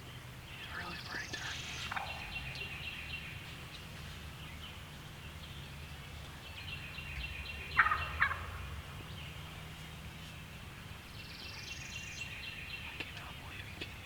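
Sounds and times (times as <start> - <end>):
turkey gobbling: 0.7 - 2.9, 7.7 - 8.8.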